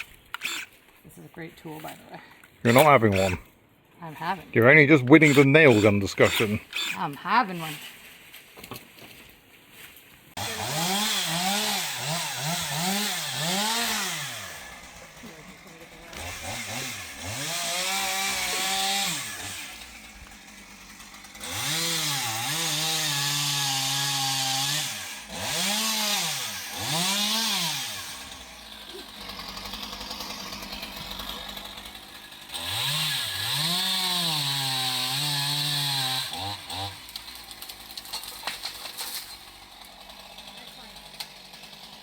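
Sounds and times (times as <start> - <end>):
chainsaw revving: 0.0 - 0.7, 2.7 - 3.4, 5.0 - 7.2, 10.4 - 42.0.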